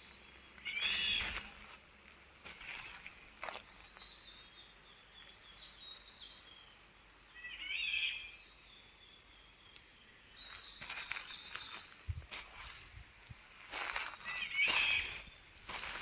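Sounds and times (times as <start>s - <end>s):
birds singing: 0.0s - 1.5s, 3.2s - 12.0s, 13.4s - 16.0s.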